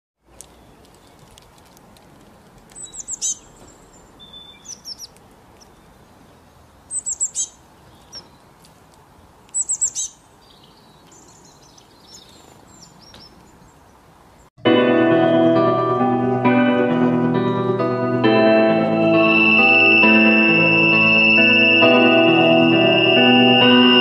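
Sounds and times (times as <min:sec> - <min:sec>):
small songbirds chirping: 0:02.7 - 0:14.5.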